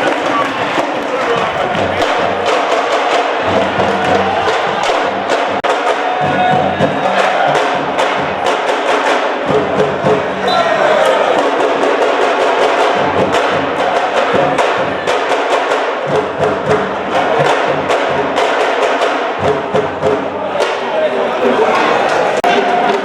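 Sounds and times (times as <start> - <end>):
fast dense drumming: 0.0 - 20.9
continuous din: 0.0 - 23.0.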